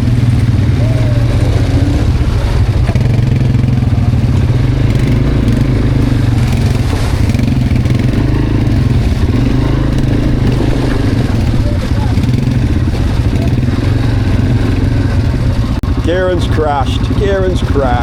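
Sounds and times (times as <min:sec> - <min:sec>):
quad bike engine running: 0:00.0 - 0:18.0
rattling over trail: 0:00.0 - 0:18.0.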